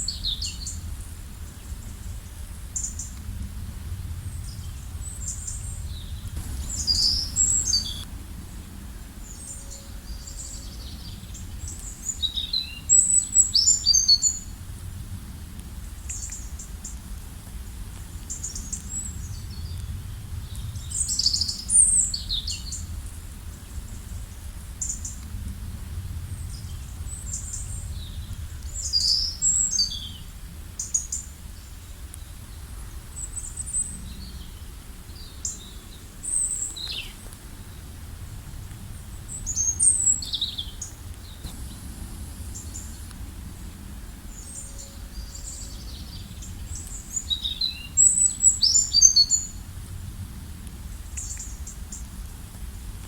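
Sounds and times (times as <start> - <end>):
low background rumble: 0.0 - 12.2, 13.1 - 30.8, 31.6 - 53.0
small birds chirping and trilling: 4.3 - 8.1.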